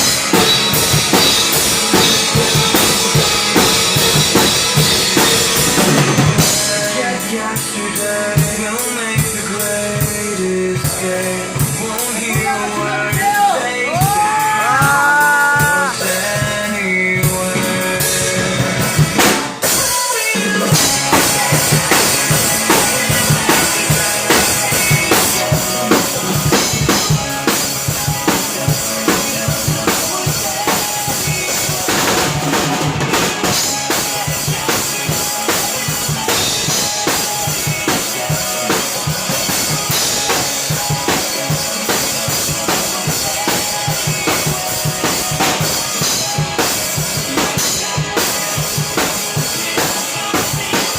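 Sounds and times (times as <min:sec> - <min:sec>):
drum kit playing: 0:00.0 - 0:50.9
recorded pop song: 0:00.0 - 0:50.9.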